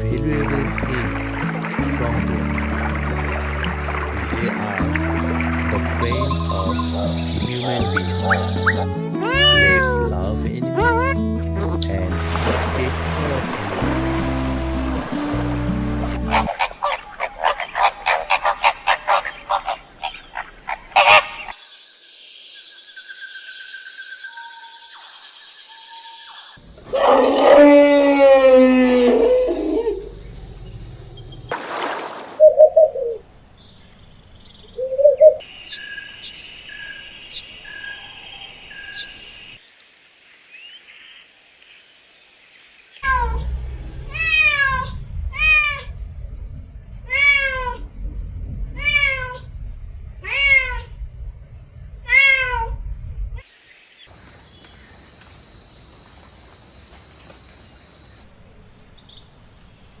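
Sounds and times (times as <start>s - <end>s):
cat meowing: 9.2s - 10.1s, 43.0s - 43.5s, 44.1s - 45.9s, 47.1s - 47.8s, 48.8s - 49.5s, 50.2s - 51.0s, 52.0s - 52.8s.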